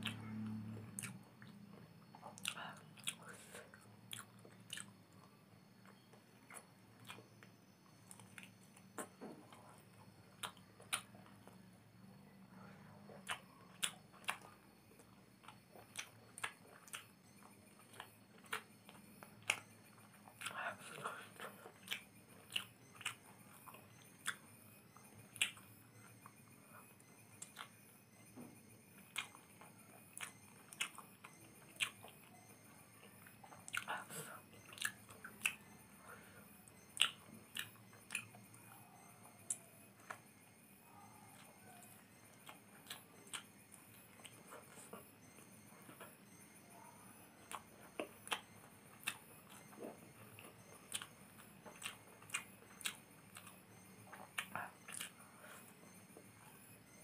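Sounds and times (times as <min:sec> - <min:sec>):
mouth chewing noodles: 0:00.0 - 0:07.4, 0:12.6 - 0:27.7, 0:29.0 - 0:40.3, 0:40.9 - 0:57.0
wet mouth clicks and smacks: 0:50.9 - 0:53.5, 0:54.1 - 0:55.2.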